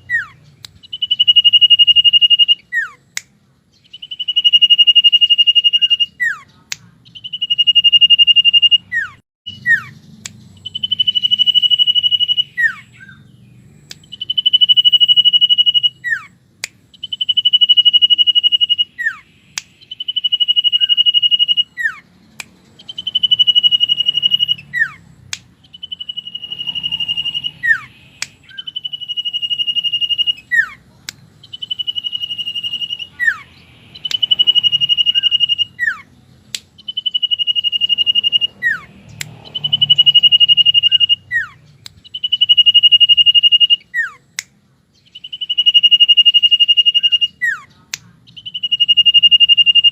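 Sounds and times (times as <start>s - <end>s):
bird whistling song: 0.0s - 49.9s
sharp clicks: 13.8s - 17.6s, 19.5s - 30.4s, 33.9s - 35.6s, 36.3s - 42.5s.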